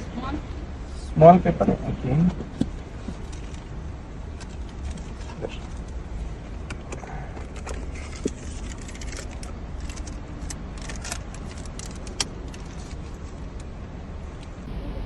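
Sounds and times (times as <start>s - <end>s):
car engine idling: 14.6s - 15.0s.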